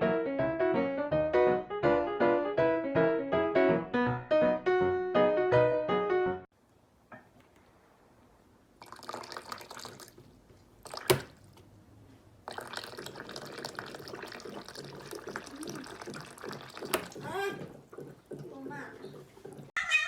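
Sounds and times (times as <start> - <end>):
water running and splashing: 8.8 - 11.6, 12.4 - 19.8.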